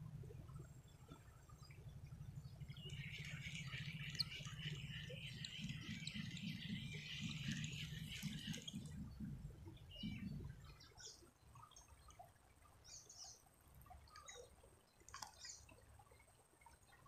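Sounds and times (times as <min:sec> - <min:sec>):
faint low rumble: 0:00.0 - 0:11.5
small birds chirping: 0:00.9 - 0:11.9.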